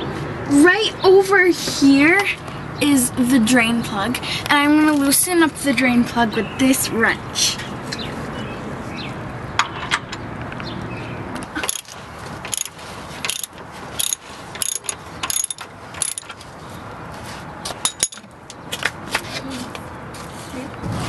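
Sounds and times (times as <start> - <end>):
steady background noise: 0.0 - 21.0
wrench clicking: 11.6 - 16.4.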